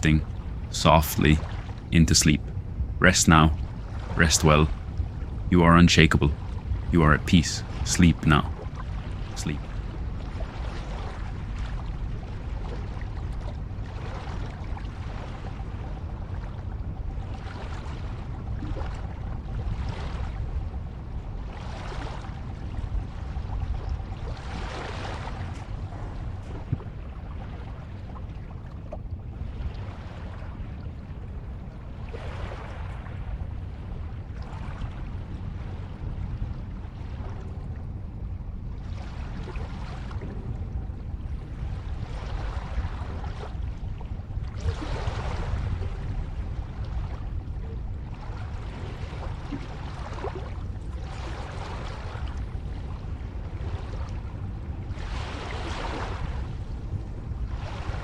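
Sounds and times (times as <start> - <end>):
low rumble of surf: 0.0 - 58.0
ocean waves breaking on shore: 0.0 - 58.0.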